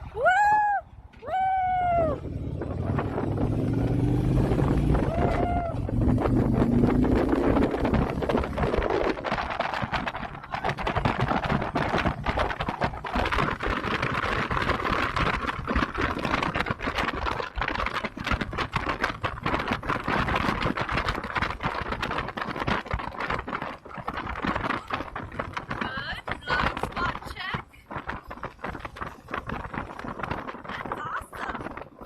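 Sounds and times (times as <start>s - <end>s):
wind buffeting on microphone: 0.0s - 32.0s
motorcycle engine running: 1.8s - 27.3s.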